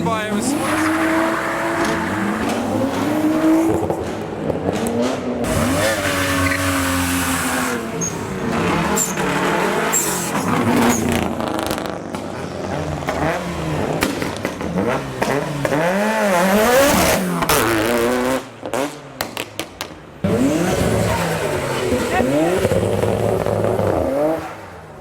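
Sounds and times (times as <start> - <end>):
car engine revving hard: 0.2 - 19.0, 20.2 - 24.6.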